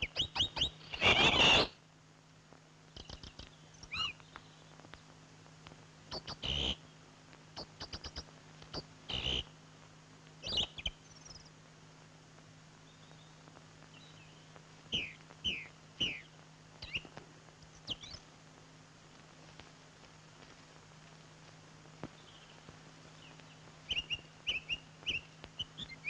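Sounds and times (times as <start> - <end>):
bird chirps and clicks: 0.0 - 1.7, 3.0 - 5.1, 6.1 - 6.8, 7.5 - 9.5, 10.4 - 11.5, 13.9 - 18.3, 22.1 - 26.0
downward-sweeping bird whistles: 0.0 - 1.8, 10.4 - 11.5, 14.0 - 17.1, 23.9 - 26.0
steady low hum: 0.0 - 26.0.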